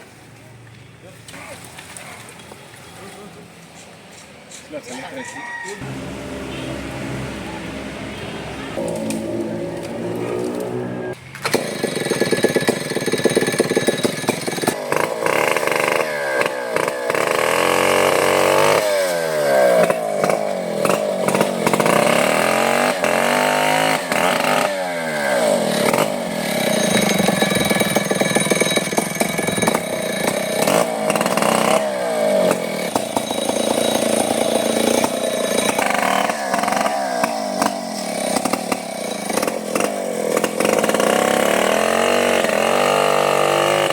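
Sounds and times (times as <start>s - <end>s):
chainsaw cutting wood: 8.8s - 43.9s.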